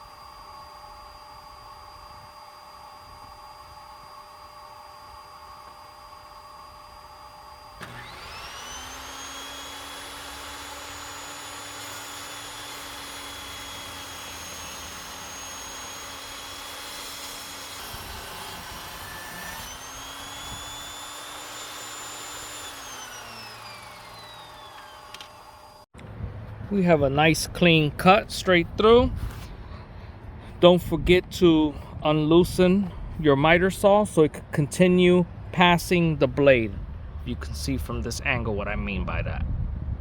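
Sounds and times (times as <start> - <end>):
table saw motor whine: 0.0 - 25.9
saw blade cutting wood: 1.3 - 25.9.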